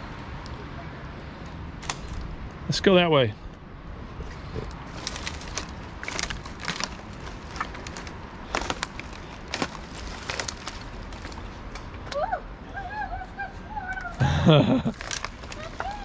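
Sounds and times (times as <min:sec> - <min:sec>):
steady low rumble: 0:00.0 - 0:15.9
footsteps snapping dry twigs: 0:01.4 - 0:02.4, 0:04.6 - 0:12.2, 0:14.9 - 0:16.0.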